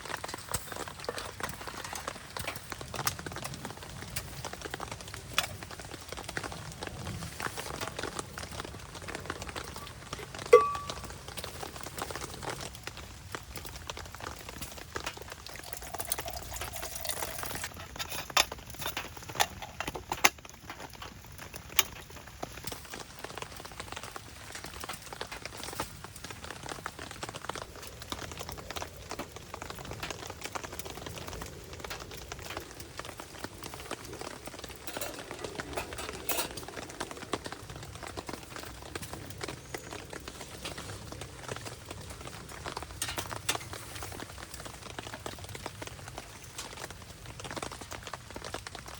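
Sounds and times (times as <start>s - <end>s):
wood fire crackling: 0.0s - 48.9s
water bubbling in a pot: 8.1s - 18.0s.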